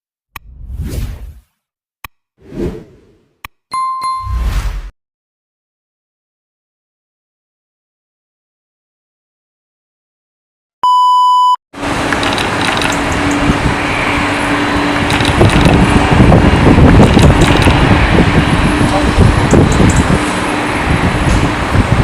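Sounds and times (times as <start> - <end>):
short electronic beep: 3.7 - 4.6, 10.8 - 11.6
jet engine rumble: 11.8 - 22.0.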